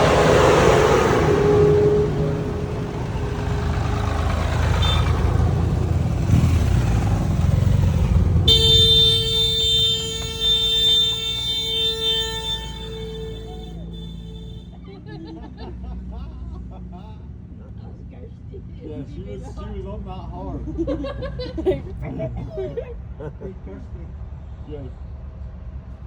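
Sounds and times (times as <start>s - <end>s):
vehicle horn long blast: 0.0s - 5.5s, 8.4s - 14.8s
tractor engines rumbling: 0.0s - 26.0s.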